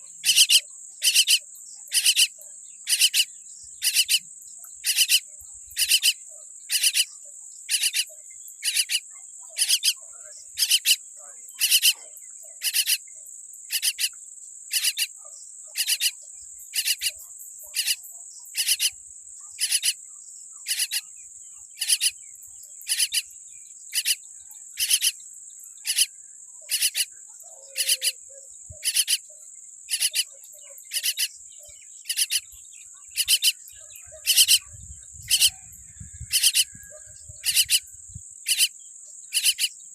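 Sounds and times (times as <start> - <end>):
high-pitched insect drone: 0.2 - 2.3, 32.0 - 38.7.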